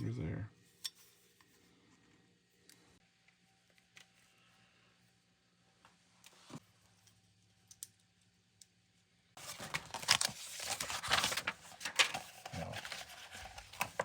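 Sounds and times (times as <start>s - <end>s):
clatter and rustle of handling: 9.4s - 14.0s.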